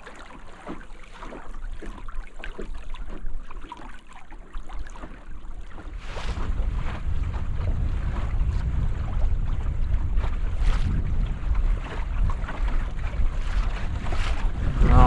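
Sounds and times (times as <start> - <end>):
water splashing against boat hull: 0.0 - 15.0
wind rumbling on microphone: 4.8 - 15.0.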